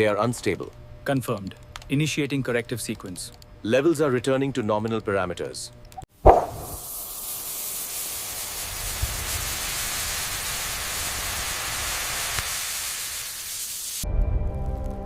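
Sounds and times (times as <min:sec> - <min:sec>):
steady hiss: 0:06.4 - 0:14.0.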